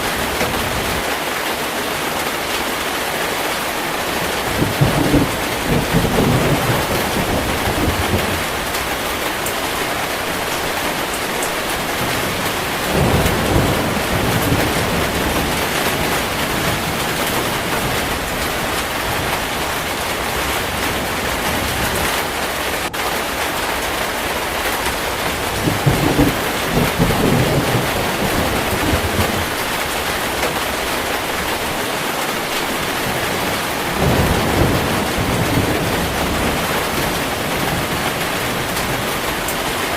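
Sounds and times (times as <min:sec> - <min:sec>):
heavy rain: 0:00.0 - 0:39.9
thunder rolling: 0:04.1 - 0:23.0, 0:23.7 - 0:39.9.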